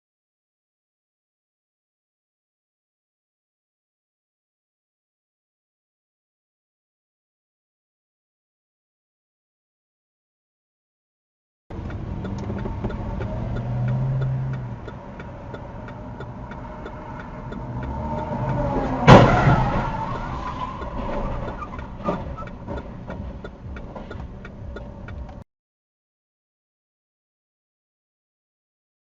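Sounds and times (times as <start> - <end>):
faint even ticking: 11.7 - 19.0, 20.7 - 25.4
car engine and road noise: 11.7 - 25.5
vehicle collision crash: 18.3 - 23.2.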